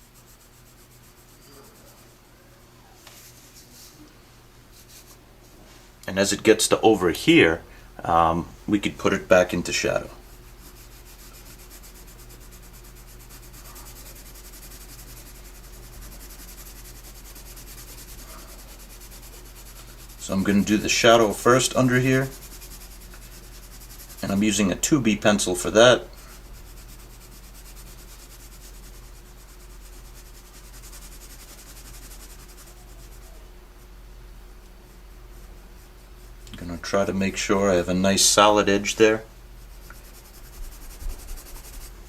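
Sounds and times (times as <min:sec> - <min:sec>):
pencil scratching on paper: 0:00.0 - 0:02.2, 0:09.9 - 0:33.9, 0:39.6 - 0:42.0
low electrical hum: 0:00.0 - 0:42.0.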